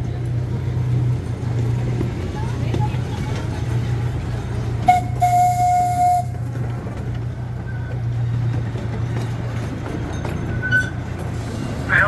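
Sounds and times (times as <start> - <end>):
train low hum: 0.0 - 12.0
train whistle blowing: 4.9 - 6.4.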